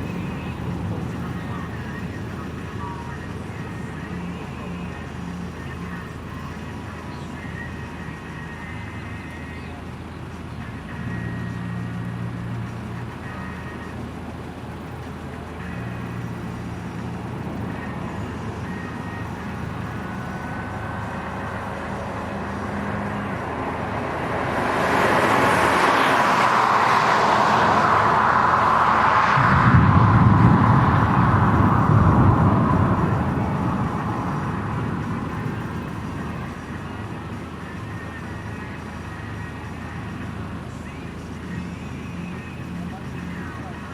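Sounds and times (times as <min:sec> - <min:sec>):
vehicle low steady hum: 0:00.0 - 0:43.9
heavy low rumble: 0:15.7 - 0:37.0
loud rushing noise: 0:16.8 - 0:36.7.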